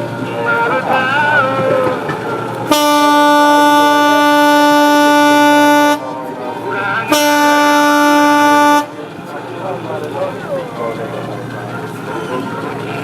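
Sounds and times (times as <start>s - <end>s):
ship's horn blasts: 0.0s - 9.2s.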